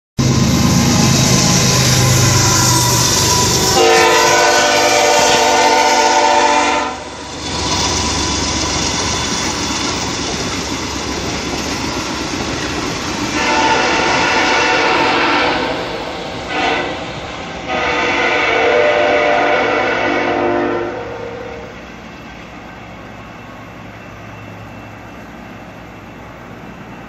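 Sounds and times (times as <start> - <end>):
train air horn: 0.2 - 7.3, 13.3 - 15.9, 16.5 - 21.7
diesel locomotive engine drone: 0.2 - 27.0
train wheels rumbling on rail: 0.2 - 27.0
horn-like tone: 0.6 - 7.2, 13.4 - 15.8, 16.5 - 17.0, 17.7 - 21.7.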